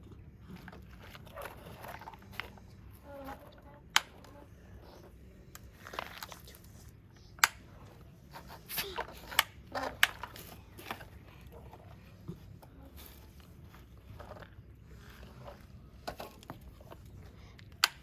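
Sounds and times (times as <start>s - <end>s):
plastic toy clicks: 8.9s - 11.1s.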